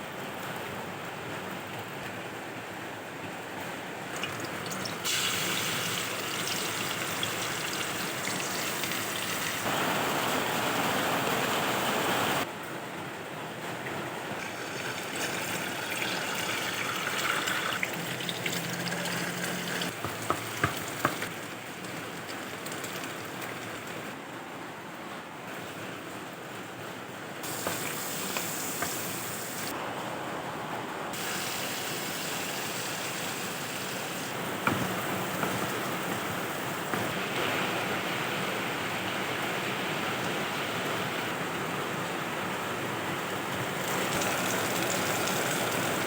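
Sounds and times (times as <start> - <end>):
food sizzling in oil: 4.2 - 12.4, 14.4 - 21.3, 27.4 - 29.7, 31.2 - 37.1, 43.8 - 46.0.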